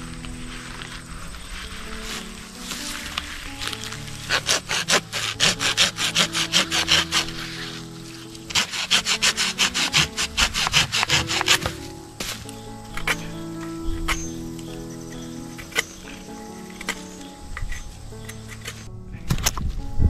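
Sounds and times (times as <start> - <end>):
hand saw cutting wood: 3.6 - 11.9.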